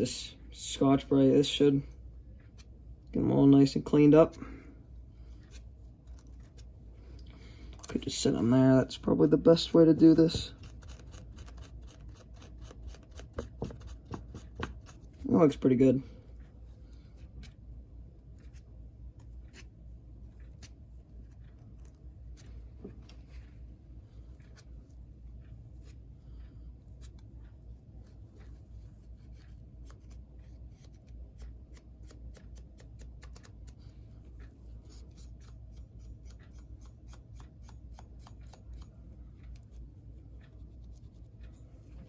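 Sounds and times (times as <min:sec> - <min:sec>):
steady low hum: 0:00.0 - 0:42.0
light scratching with scrub pad: 0:07.9 - 0:17.7, 0:18.3 - 0:42.0.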